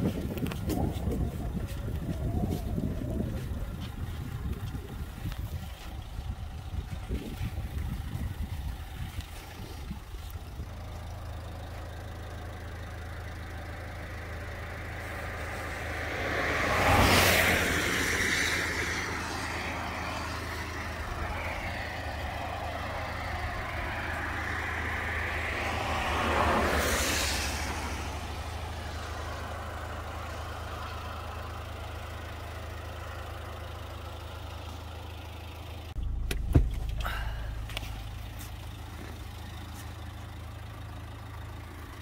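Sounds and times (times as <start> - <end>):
car engine idling: 0.0 - 42.0
vehicles passing on road: 0.0 - 42.0.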